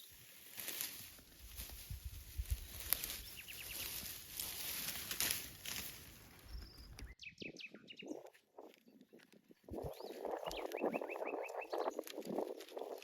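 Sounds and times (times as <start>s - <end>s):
small birds chirping: 2.2s - 4.8s, 6.3s - 13.0s.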